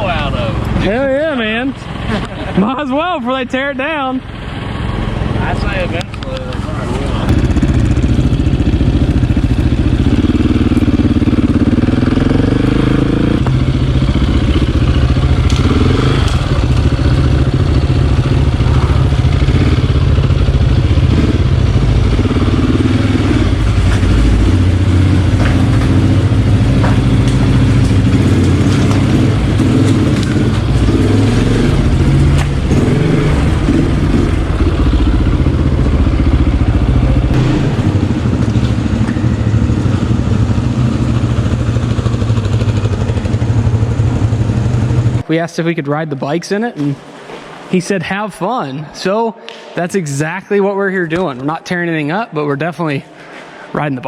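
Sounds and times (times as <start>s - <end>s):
dirt bike engines running: 0.0s - 48.2s.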